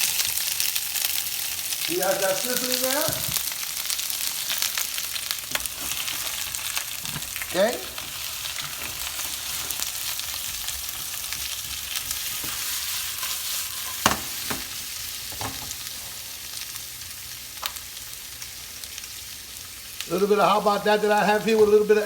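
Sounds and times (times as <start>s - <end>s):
oil popping and crackling: 0.0s - 16.0s, 17.5s - 19.0s
meat sizzling in oil: 0.0s - 22.0s.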